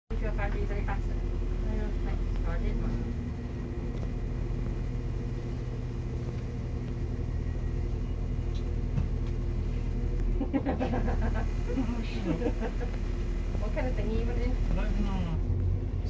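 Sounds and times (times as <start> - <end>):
people talking: 0.1 - 3.2, 10.6 - 12.9, 13.5 - 15.5
diesel train engine drone: 0.1 - 16.0.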